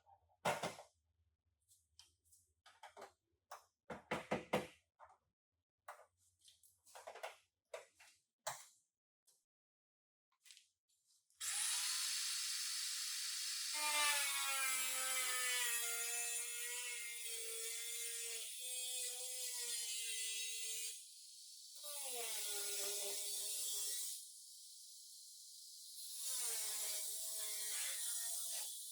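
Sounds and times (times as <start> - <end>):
power tool whining: 11.4 - 15.4.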